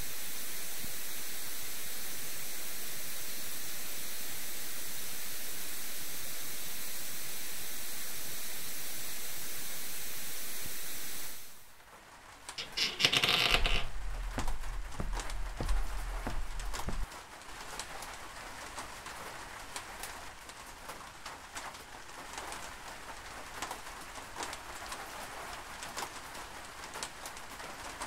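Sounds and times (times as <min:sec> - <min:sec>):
steady hiss: 0:00.0 - 0:11.8
knocks and clicks: 0:12.6 - 0:17.1.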